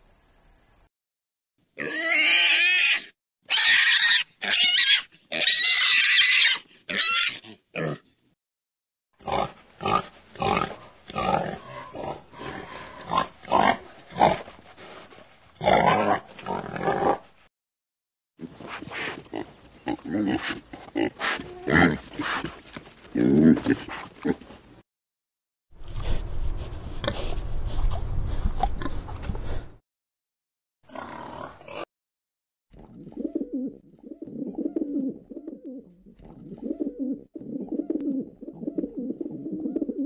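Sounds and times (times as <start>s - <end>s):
pig squealing: 1.8s - 8.0s
pig grunting: 9.2s - 14.5s, 15.6s - 17.3s, 18.6s - 24.6s.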